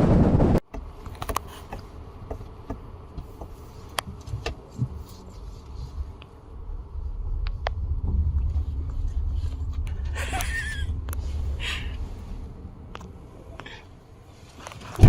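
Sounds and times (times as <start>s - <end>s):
wind buffeting microphone: 0.0s - 0.6s, 6.0s - 13.0s.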